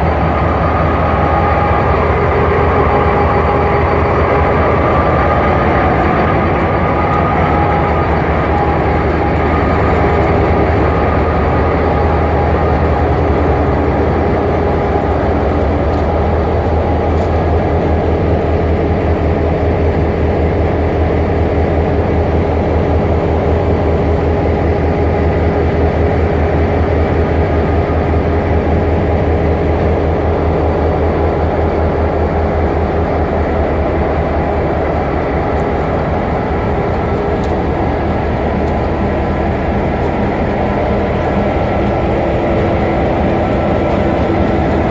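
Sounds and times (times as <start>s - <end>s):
train wheels rumbling on rail: 0.0s - 44.9s.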